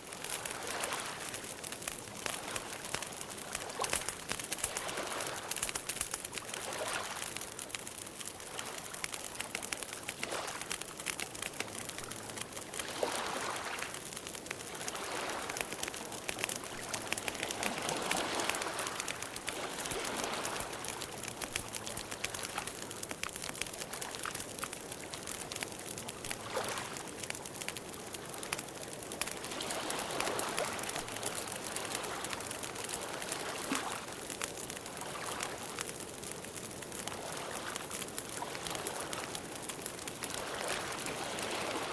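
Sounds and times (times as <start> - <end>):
campfire flames hissing: 0.0 - 41.9
fire crackles and pops: 0.0 - 41.9.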